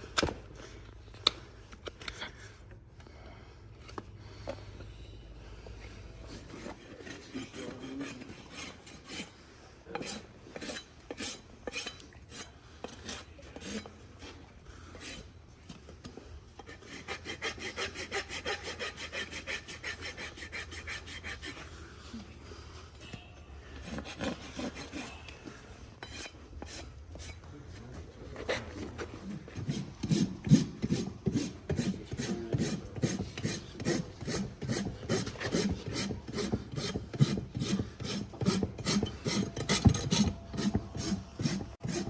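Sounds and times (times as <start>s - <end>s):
rasp filing horse hoof: 6.2s - 15.4s, 16.0s - 21.8s, 23.8s - 25.3s, 26.0s - 27.5s, 28.3s - 42.0s.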